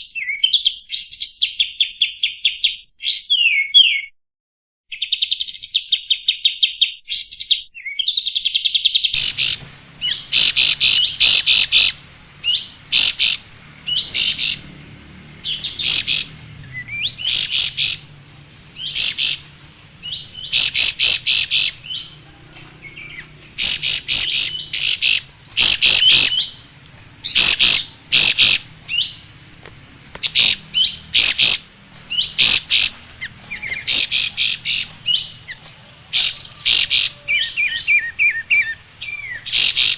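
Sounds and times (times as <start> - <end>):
songbird singing: 0.0 - 4.1, 4.9 - 39.9
faint low hum: 9.2 - 36.6.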